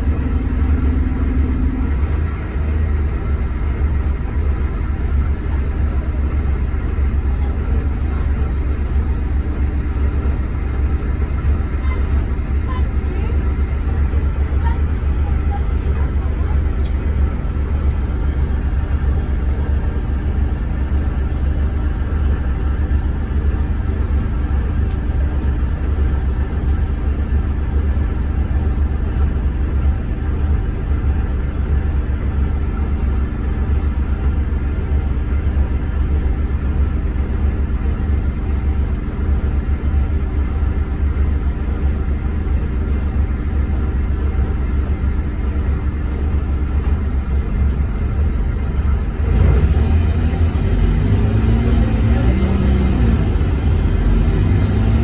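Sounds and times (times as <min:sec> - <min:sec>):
road noise: 0:00.0 - 0:42.6, 0:43.2 - 0:55.0
bus diesel engine droning: 0:00.0 - 0:55.0.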